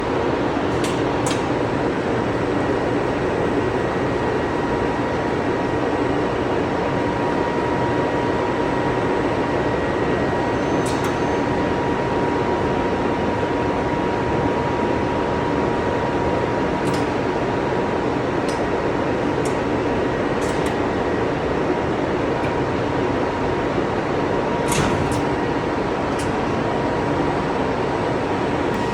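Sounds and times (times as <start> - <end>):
machine mechanical hum: 0.0 - 28.9
thin steady whine: 16.1 - 28.9.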